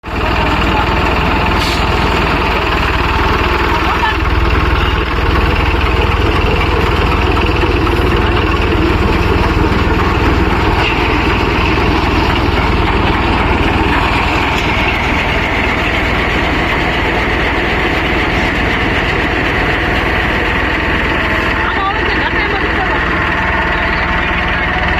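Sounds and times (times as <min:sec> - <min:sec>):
threshing machinery drone: 0:00.0 - 0:24.9
tractor diesel engine: 0:00.0 - 0:24.9
thin high machinery tone: 0:02.5 - 0:24.9.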